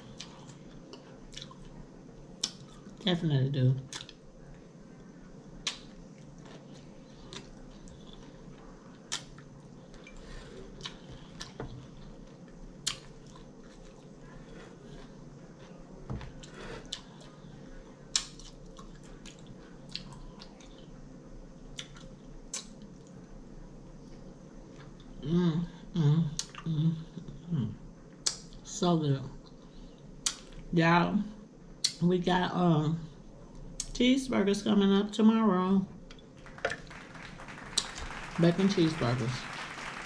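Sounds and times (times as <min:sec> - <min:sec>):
person chewing salad: 0:00.0 - 0:01.7, 0:03.9 - 0:04.2, 0:05.6 - 0:17.4, 0:18.1 - 0:20.9
faint steady hum: 0:00.0 - 0:40.0.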